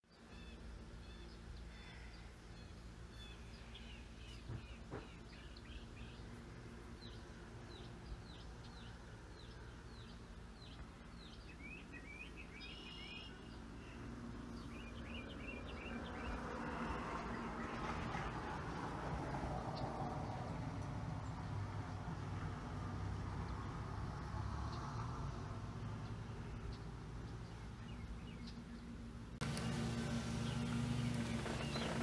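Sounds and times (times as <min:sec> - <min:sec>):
faint birds chirping: 0:00.1 - 0:18.7, 0:24.4 - 0:32.0.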